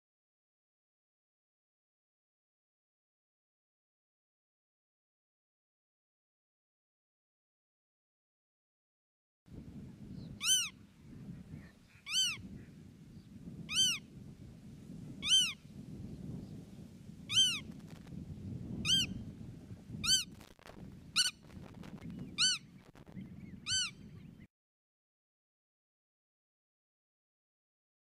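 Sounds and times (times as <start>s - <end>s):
bird mewing call: 10.4s - 10.8s, 11.6s - 12.8s, 13.7s - 14.0s, 15.2s - 15.6s, 17.3s - 17.7s, 18.8s - 19.2s, 20.0s - 20.3s, 21.2s - 21.4s, 22.0s - 24.4s.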